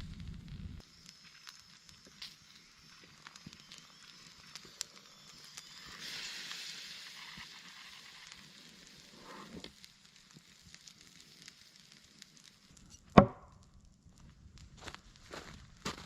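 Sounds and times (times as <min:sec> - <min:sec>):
burning wood popping: 0:00.0 - 0:16.0
campfire crackling: 0:00.0 - 0:16.0
broad hiss: 0:05.6 - 0:09.8.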